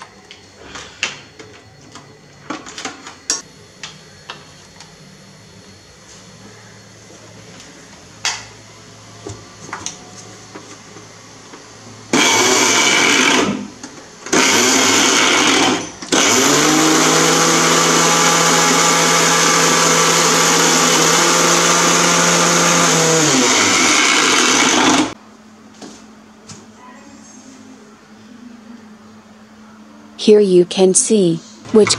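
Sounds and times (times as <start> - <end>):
mixer grinder motor: 11.6 - 25.2.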